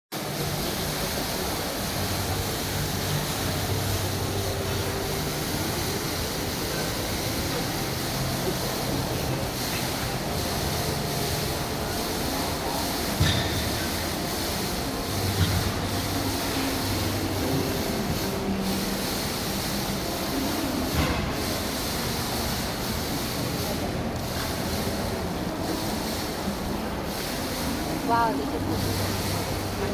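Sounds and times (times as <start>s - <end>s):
waterfall splashing: 0.2s - 13.2s.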